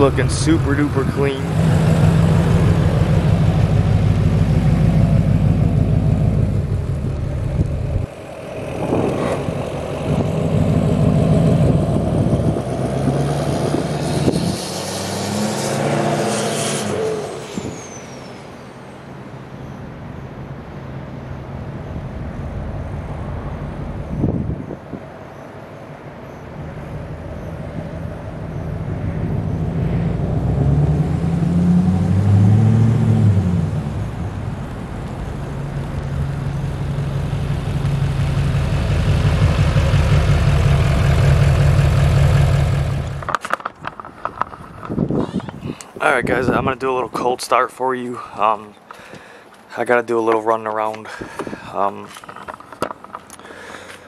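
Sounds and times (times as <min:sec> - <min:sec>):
diesel pickup driving past: 0:00.0 - 0:19.4, 0:26.5 - 0:43.4.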